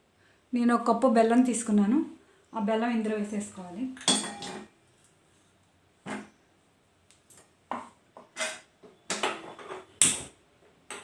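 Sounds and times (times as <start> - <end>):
kitchen utensils knocking and clinking: 4.0 - 4.7, 7.7 - 10.0.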